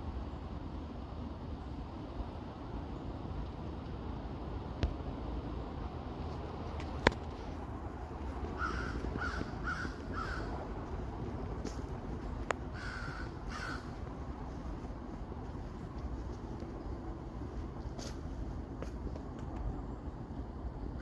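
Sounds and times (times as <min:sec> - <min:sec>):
low rumble: 0:05.6 - 0:21.0
crow cawing: 0:08.6 - 0:10.7, 0:12.7 - 0:14.0.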